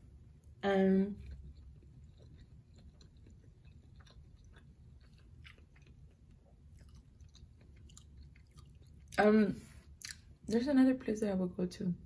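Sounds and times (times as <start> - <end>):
faint chewing mouth clicks: 1.2 - 9.2, 9.9 - 10.4.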